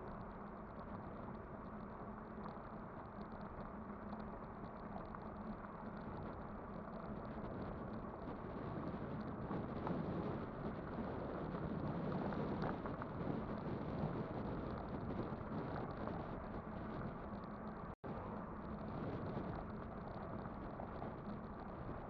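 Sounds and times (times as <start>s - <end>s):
bicycle tyre noise: 0.2s - 22.0s
wind rush on microphone: 4.5s - 22.0s.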